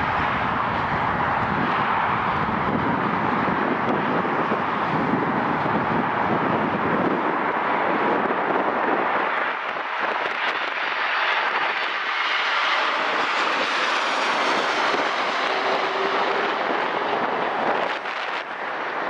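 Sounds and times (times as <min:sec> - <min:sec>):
airliner engine rush: 0:00.0 - 0:19.0
faint high engine whine: 0:10.5 - 0:19.0.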